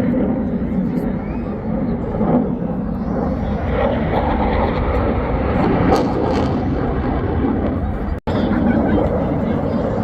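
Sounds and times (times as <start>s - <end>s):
airplane flying by: 0.0s - 10.0s.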